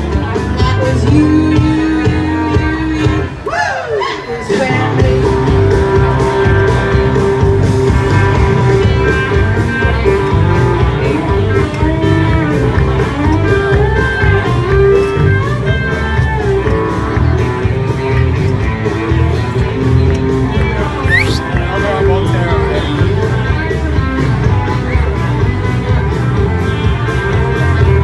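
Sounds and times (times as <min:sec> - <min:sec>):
guitar playing: 0:21.0 - 0:21.4.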